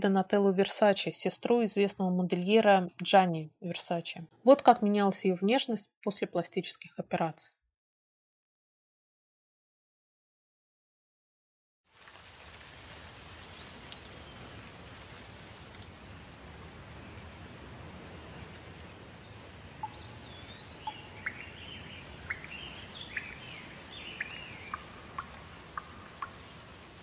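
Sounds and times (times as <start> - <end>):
steady outdoor hiss: 11.9 - 27.0
birds chirping: 16.4 - 27.0.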